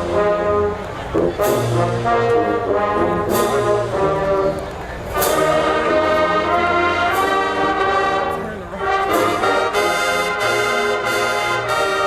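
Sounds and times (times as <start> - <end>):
marching band brass playing: 0.0 - 12.0.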